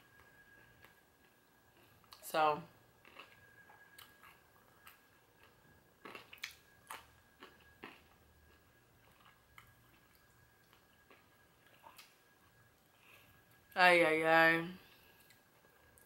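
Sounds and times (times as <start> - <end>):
chewing and mouth sounds: 3.0 - 13.6.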